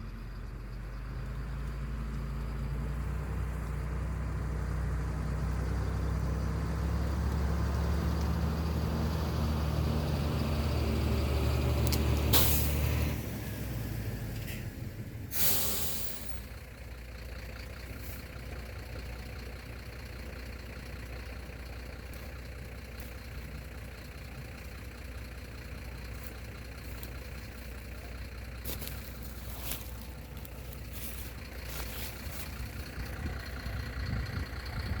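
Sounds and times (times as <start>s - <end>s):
diesel engine idling: 0.0s - 35.0s
hiss of released air: 12.3s - 12.8s, 15.3s - 16.4s.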